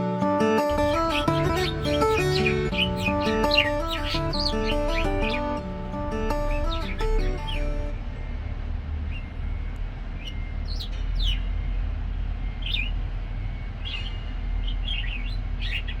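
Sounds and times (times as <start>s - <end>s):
music: 0.0s - 8.5s
budgerigar chirping: 0.7s - 16.0s
low steady hum: 0.7s - 16.0s.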